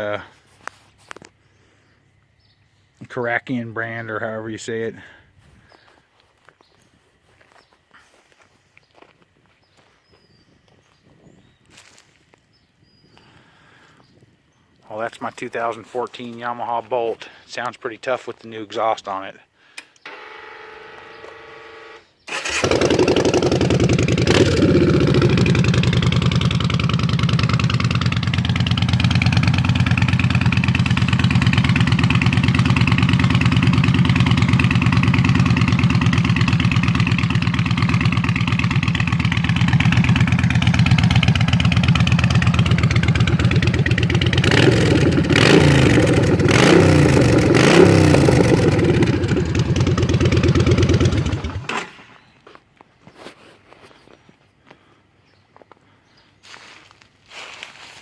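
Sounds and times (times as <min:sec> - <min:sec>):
motorcycle engine starting: 0:20.0 - 0:52.2
motorcycle engine idling: 0:20.1 - 0:51.7
motorcycle engine revving: 0:20.1 - 0:52.0.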